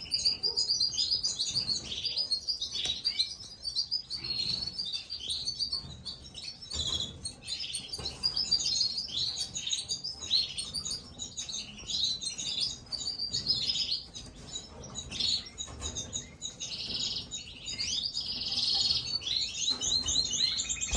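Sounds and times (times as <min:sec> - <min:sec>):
chicks chirping: 0:00.0 - 0:20.9.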